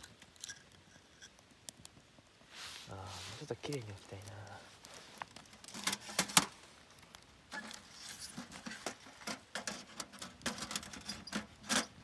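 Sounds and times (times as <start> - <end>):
objects clicking and knocking: 7.5 - 12.0.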